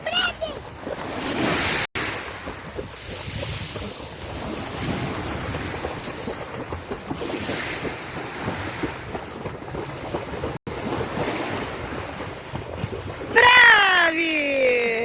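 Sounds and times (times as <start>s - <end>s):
wind buffeting microphone: 0.6s - 13.7s.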